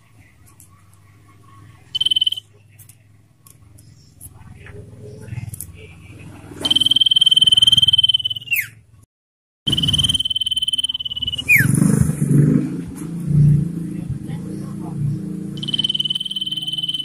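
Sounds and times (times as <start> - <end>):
bird trilling: 1.9 - 2.4, 6.6 - 8.8, 9.7 - 12.0, 15.6 - 17.0.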